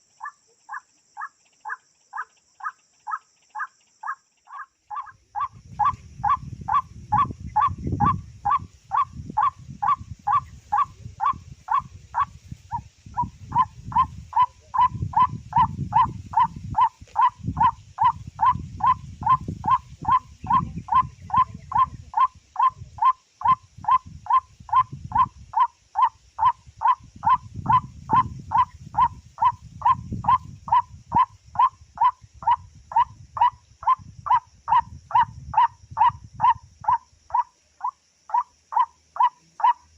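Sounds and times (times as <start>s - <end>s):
waterhen call: 0.0s - 39.9s.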